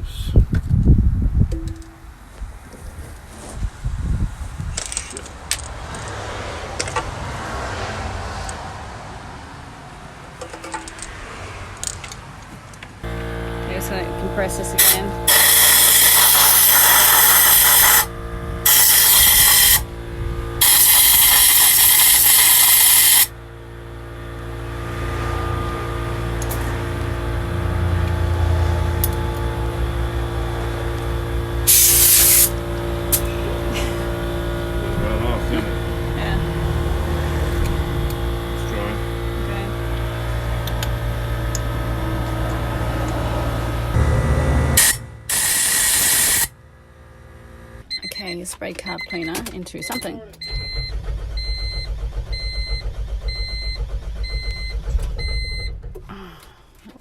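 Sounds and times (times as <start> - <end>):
motor humming: 13.0 - 48.0
compressed air hissing from blow gun: 13.8 - 19.8, 20.6 - 23.3, 31.7 - 34.2, 44.8 - 46.5.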